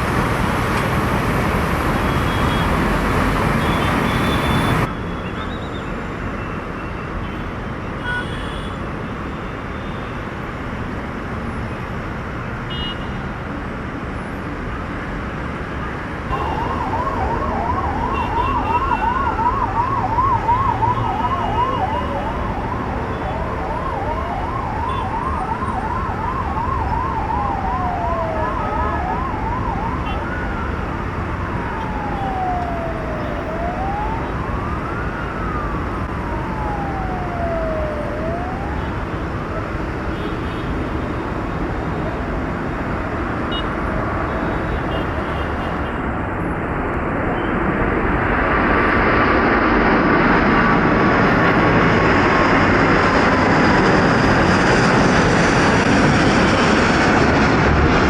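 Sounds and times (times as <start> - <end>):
emergency vehicle siren: 0.0 - 58.0
traffic noise: 0.0 - 58.0
aircraft jet engine roar: 14.6 - 58.0.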